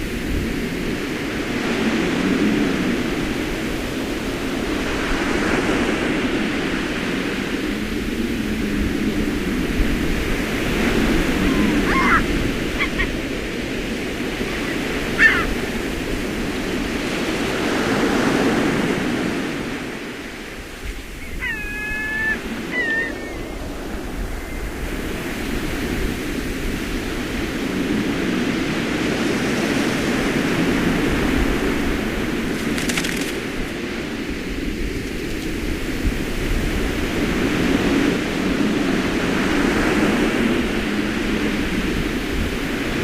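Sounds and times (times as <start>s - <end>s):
ocean surf washing: 0.0s - 43.0s
short high animal calls: 11.4s - 13.2s, 15.2s - 15.6s, 21.2s - 23.5s.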